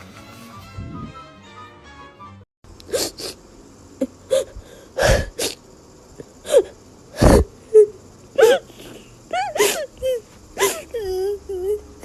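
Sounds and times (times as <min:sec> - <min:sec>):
background music: 0:00.0 - 0:02.4.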